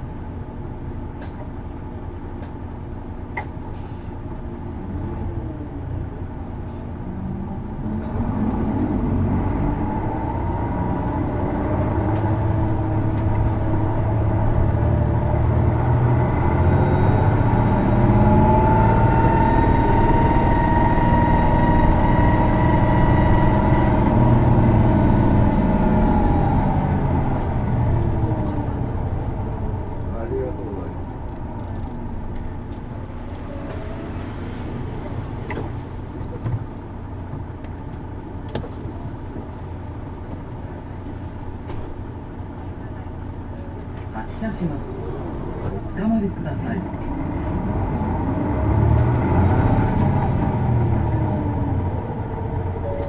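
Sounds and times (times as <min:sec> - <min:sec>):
bus diesel engine pulling hard: 0:00.0 - 0:53.0
whistling tone: 0:52.7 - 0:53.0.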